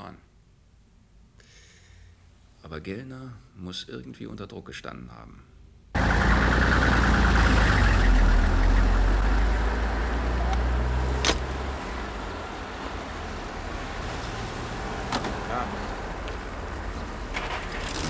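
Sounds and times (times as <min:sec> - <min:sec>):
vehicle engine rumbling: 0:06.0 - 0:18.0.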